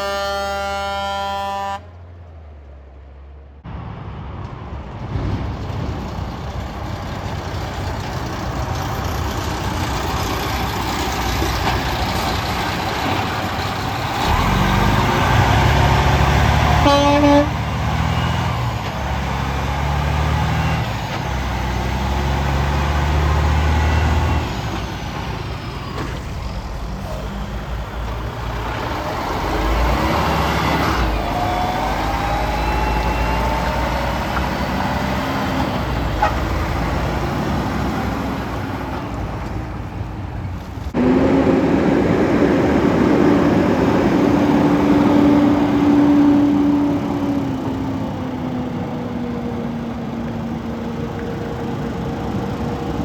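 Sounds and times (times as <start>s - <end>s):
horn toot: 0.0s - 1.9s, 16.6s - 17.7s
trucks driving past: 0.0s - 53.0s
deep engine rumble: 23.8s - 30.3s, 38.8s - 53.0s.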